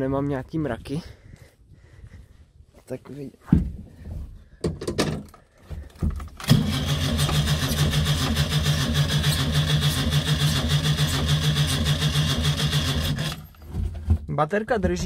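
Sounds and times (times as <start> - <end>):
car engine starting and running: 6.4 - 13.6.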